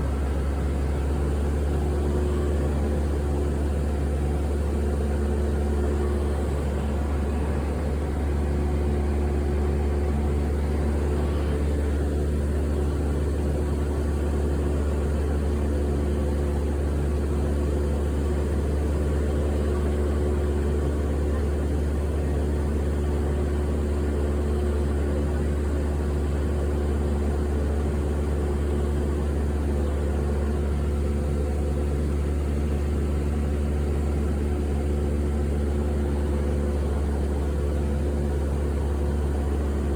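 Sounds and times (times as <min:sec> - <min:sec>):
airliner cabin engine drone: 0:00.0 - 0:18.4.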